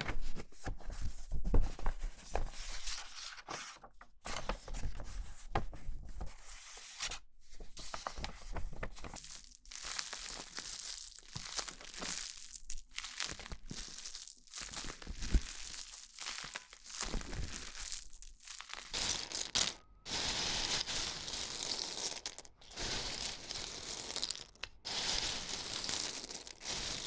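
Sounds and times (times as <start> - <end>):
crinkly material being crumpled: 7.8 - 27.0.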